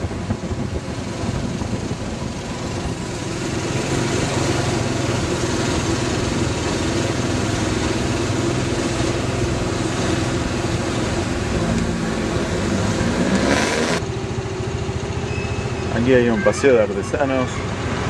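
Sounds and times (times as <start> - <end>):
wind noise on microphone: 0.0 - 3.6
motorcycle engine running: 0.0 - 15.9.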